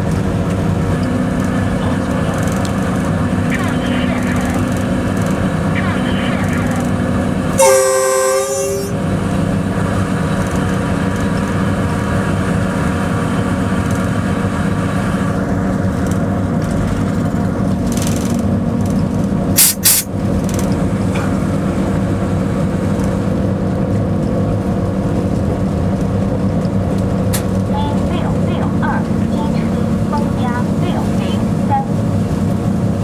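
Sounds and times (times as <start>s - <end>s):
locomotive engine drone: 0.0s - 33.0s
locomotive horn blast: 1.1s - 9.2s, 27.4s - 32.6s.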